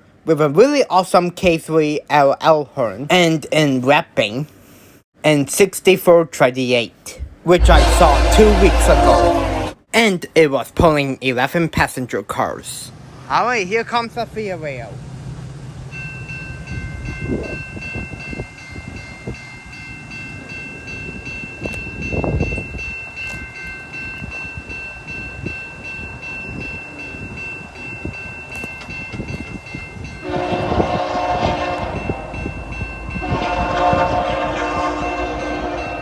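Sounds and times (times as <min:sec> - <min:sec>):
locomotive low rumble: 0:07.2 - 0:09.8
train air horn blasts: 0:07.6 - 0:09.8, 0:30.2 - 0:32.3, 0:33.2 - 0:36.0.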